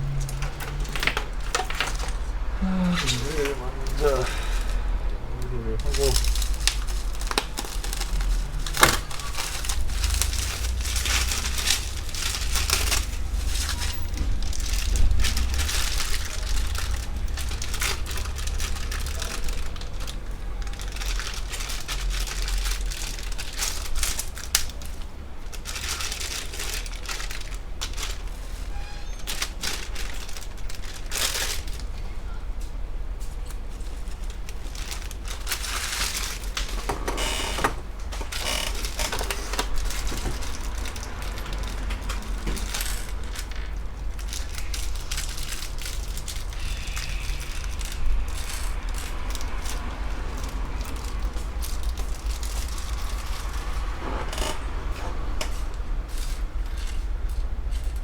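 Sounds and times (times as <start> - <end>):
steady low hum: 0.0 - 25.6
hands handling computer parts: 0.0 - 58.0.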